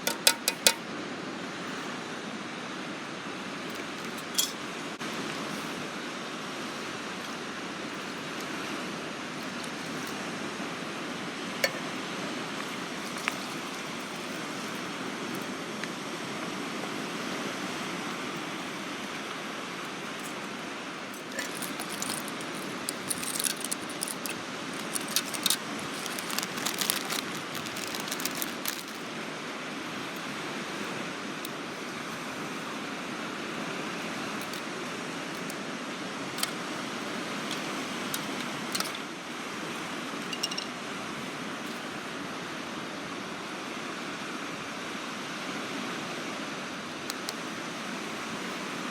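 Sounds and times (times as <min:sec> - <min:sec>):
waves rushing: 0:00.0 - 0:48.9
metal pieces clinking: 0:21.2 - 0:29.0.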